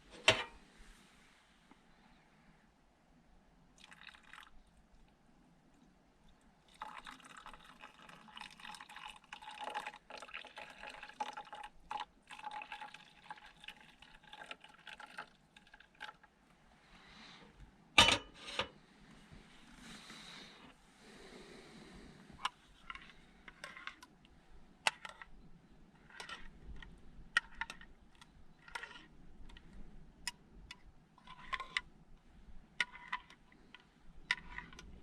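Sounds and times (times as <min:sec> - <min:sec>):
liquid pouring into a cup: 0:03.8 - 0:04.6, 0:06.7 - 0:16.3.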